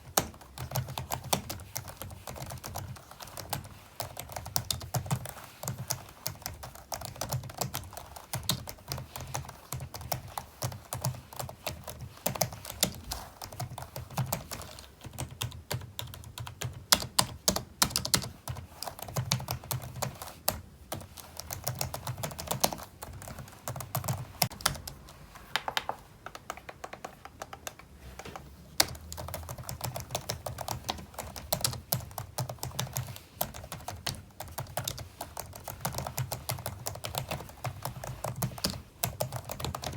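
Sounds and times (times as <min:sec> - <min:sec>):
computer keyboard typing: 0:00.0 - 0:39.9.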